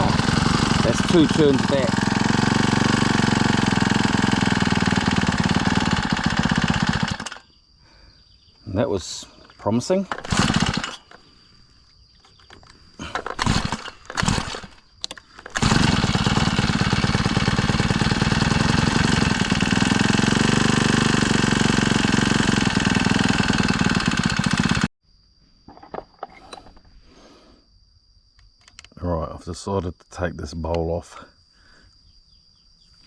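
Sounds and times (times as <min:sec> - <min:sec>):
brush cutter engine running: 0:00.0 - 0:07.4, 0:09.1 - 0:11.2, 0:13.0 - 0:24.9
pull starter cord: 0:00.0 - 0:07.4, 0:09.4 - 0:11.2, 0:12.3 - 0:24.9.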